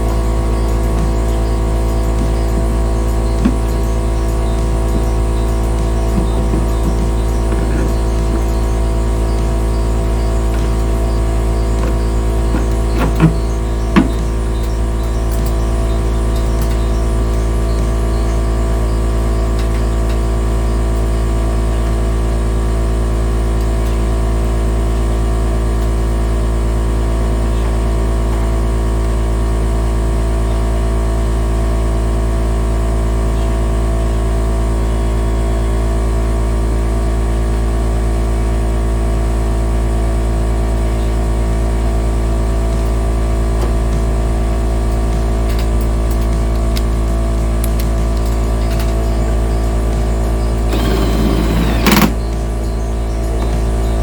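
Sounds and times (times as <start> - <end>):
constant tones: 0.0 - 18.5, 46.2 - 54.0
loud steady low hum: 0.0 - 54.0.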